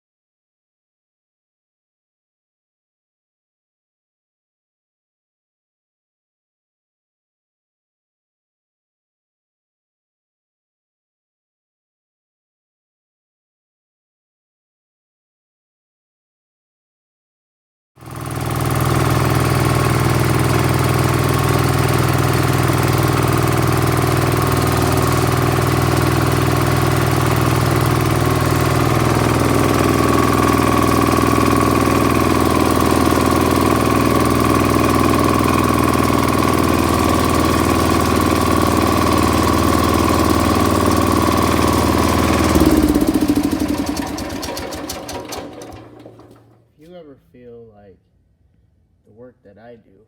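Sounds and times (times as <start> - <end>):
garden tractor engine running: 18.0 - 46.6.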